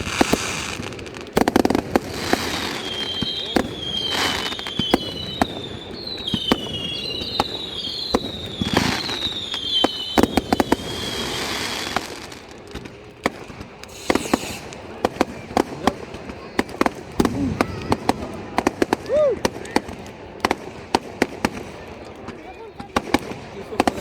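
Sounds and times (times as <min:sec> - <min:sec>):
firework whistles: 0:00.0 - 0:12.5, 0:13.8 - 0:15.6
firework bangs and crackles: 0:00.0 - 0:24.0.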